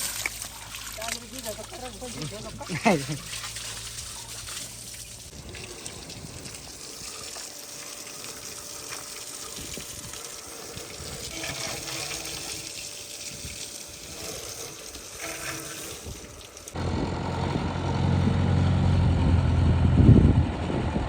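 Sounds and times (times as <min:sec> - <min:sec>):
water running: 0:00.0 - 0:16.8.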